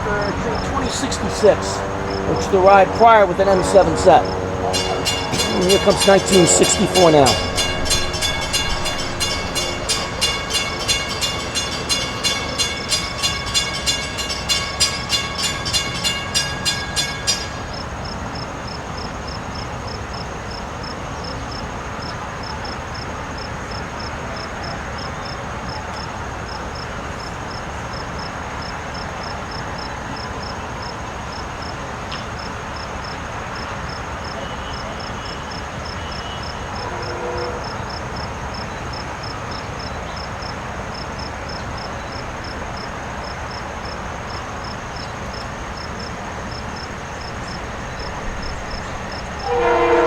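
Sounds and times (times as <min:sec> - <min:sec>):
train wheels clacking: 0:00.0 - 0:18.4
crossing bells ringing: 0:00.0 - 0:19.0, 0:34.3 - 0:50.0.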